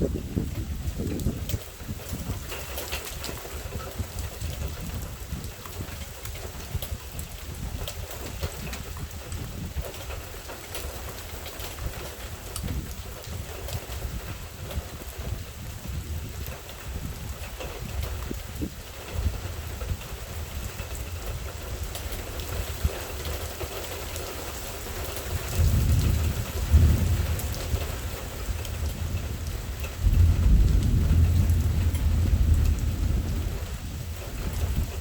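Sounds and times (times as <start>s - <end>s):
rain falling: 0.0s - 35.0s
thunder rolling: 25.0s - 35.0s.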